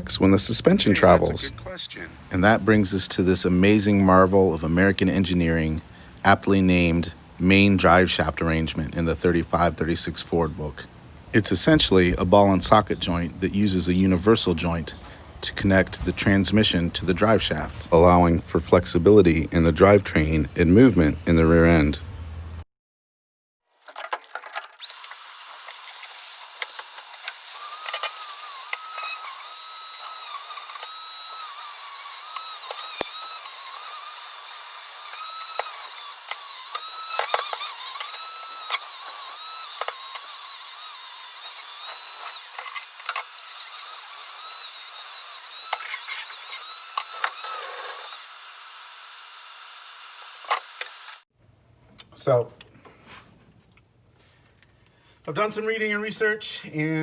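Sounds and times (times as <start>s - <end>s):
tool whirring and clicking: 24.5s - 51.2s.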